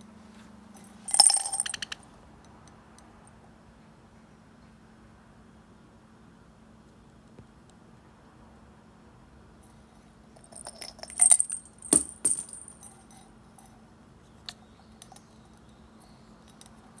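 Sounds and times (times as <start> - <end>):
small metal bell jingling: 0.8 - 2.0, 10.4 - 13.2.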